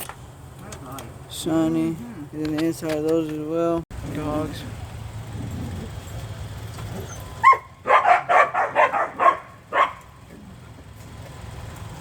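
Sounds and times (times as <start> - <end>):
dog yelping: 6.9 - 10.2
dogs barking: 6.9 - 10.6.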